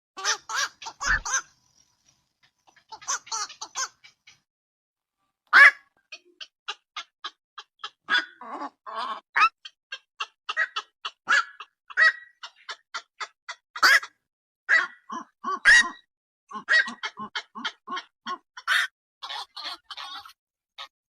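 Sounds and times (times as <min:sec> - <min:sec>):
heron harsh croaks: 0:00.2 - 0:01.6.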